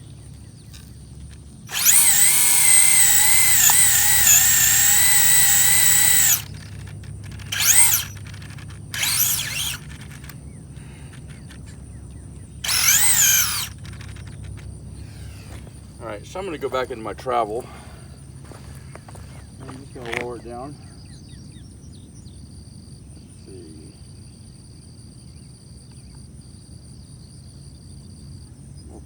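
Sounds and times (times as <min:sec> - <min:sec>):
rc car motor whining: 0:01.7 - 0:11.7, 0:12.6 - 0:15.8.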